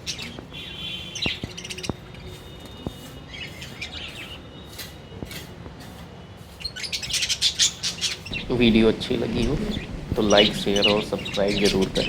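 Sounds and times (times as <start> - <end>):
lovebirds chirping: 6.8 - 12.0.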